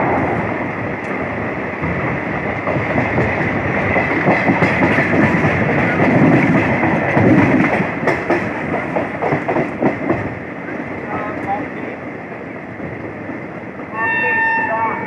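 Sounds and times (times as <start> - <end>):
wheels clattering over rails: 0.0 - 10.4
train rumbling: 0.0 - 15.0.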